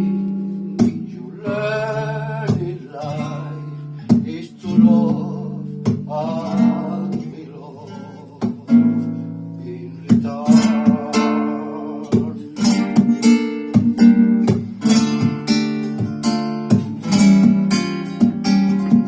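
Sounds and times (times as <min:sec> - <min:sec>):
flamenco guitar: 0:00.0 - 0:19.0.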